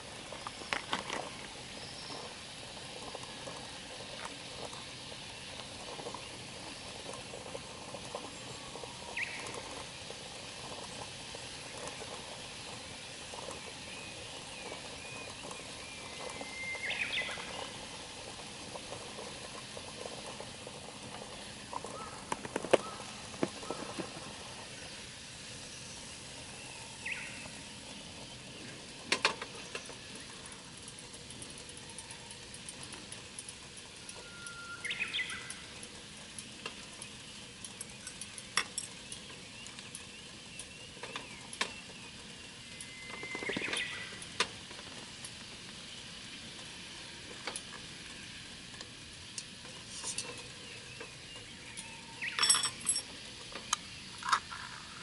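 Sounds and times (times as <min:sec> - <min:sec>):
campfire crackling: 0:00.0 - 0:55.0
fire pops and snaps: 0:00.2 - 0:01.6, 0:14.3 - 0:24.8.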